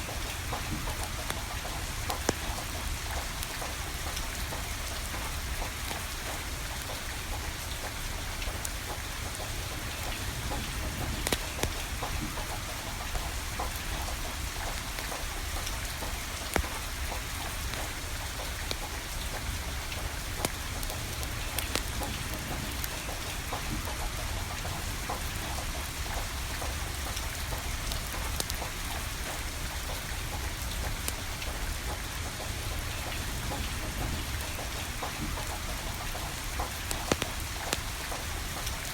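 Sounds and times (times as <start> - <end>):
steady rain falling: 0.0 - 38.9
sharp pops and clicks: 11.1 - 12.3, 14.7 - 19.4, 20.3 - 23.7, 35.0 - 38.9.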